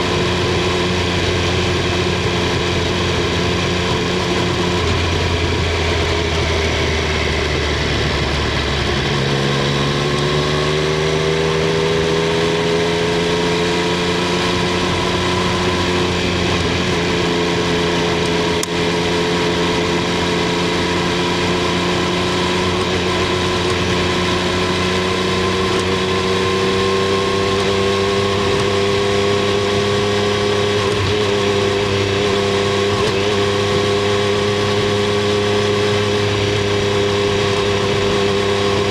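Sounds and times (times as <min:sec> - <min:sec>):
motorcycle engine and exhaust: 0:00.0 - 0:38.9.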